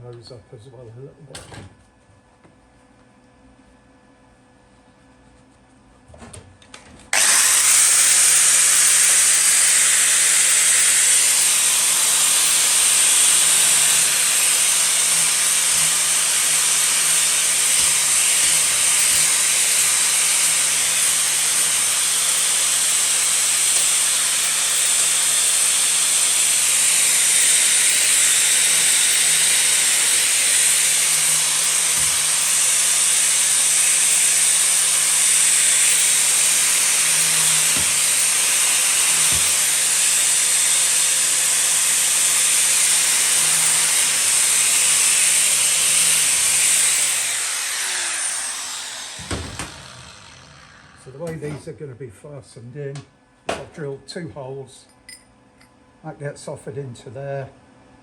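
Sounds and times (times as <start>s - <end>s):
angle grinder grinding steel: 7.2s - 51.7s.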